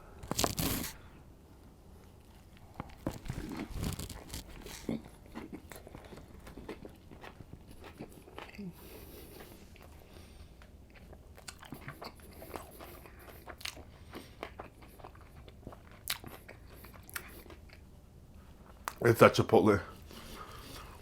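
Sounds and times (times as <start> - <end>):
person chewing food: 0.2 - 1.0, 2.1 - 19.0, 20.0 - 21.0.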